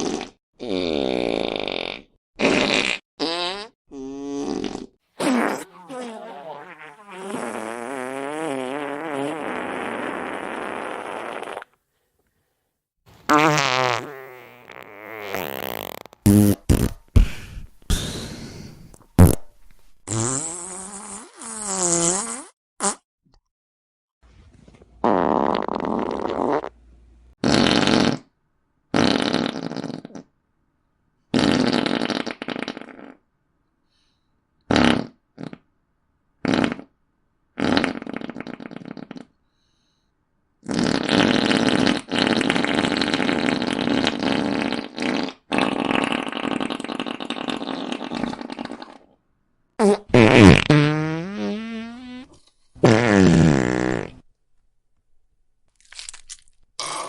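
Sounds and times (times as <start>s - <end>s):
fart sound effects: 0.0s - 11.8s, 13.3s - 18.4s, 19.2s - 23.0s, 25.0s - 26.7s, 27.4s - 28.3s, 28.9s - 30.2s, 31.3s - 33.2s, 34.7s - 35.6s, 36.4s - 36.9s, 37.6s - 39.3s, 40.6s - 49.1s, 49.8s - 54.2s.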